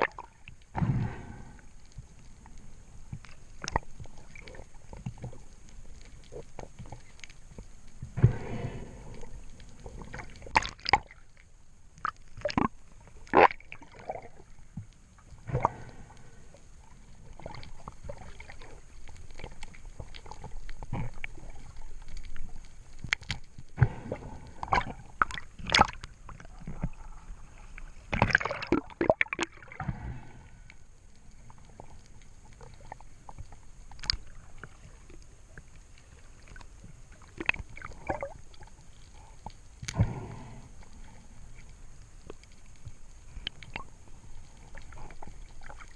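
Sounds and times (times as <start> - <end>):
water sloshing and gurgling: 0.0 - 45.9.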